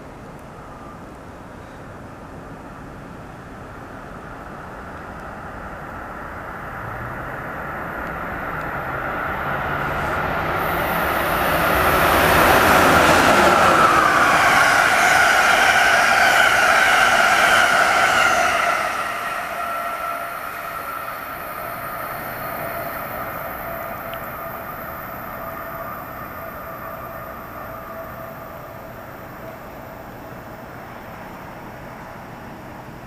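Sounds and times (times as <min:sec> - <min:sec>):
passenger train rushing past: 0:00.0 - 0:33.0
high ringing tone: 0:10.6 - 0:31.6.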